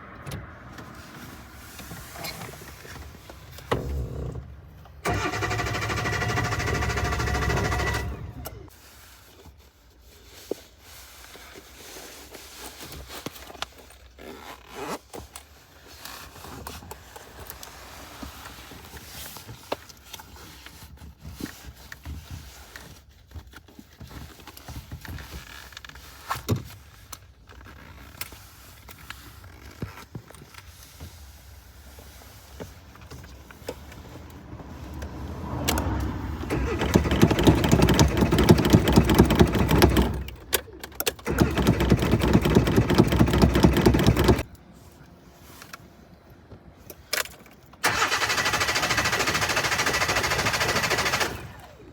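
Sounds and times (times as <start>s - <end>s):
clicks and rattles from car controls: 35.6s - 44.5s
car engine running: 35.7s - 40.5s, 41.2s - 44.5s.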